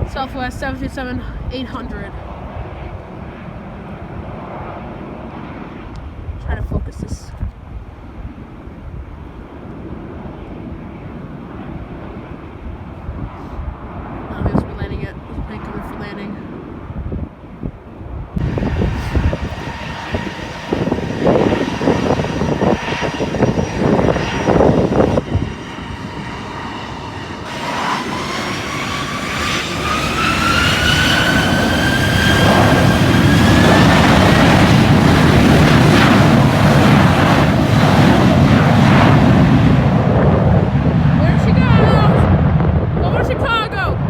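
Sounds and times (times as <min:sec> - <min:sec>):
wind buffeting microphone: 0:00.0 - 0:44.0
jet engines spooling up: 0:18.4 - 0:43.7.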